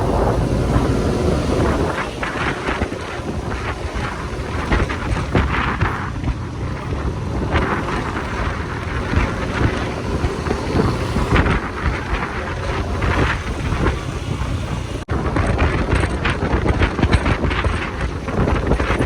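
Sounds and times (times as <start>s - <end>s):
motorcycle engine: 0.0s - 19.0s
road noise: 0.0s - 19.0s
wind buffeting microphone: 0.0s - 19.0s.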